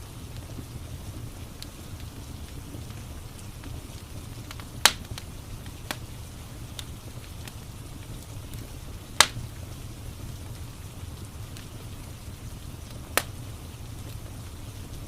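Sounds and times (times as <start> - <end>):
rain hissing: 0.0 - 15.0
wood fire crackling: 0.0 - 15.0
sharp pops: 9.2 - 9.4.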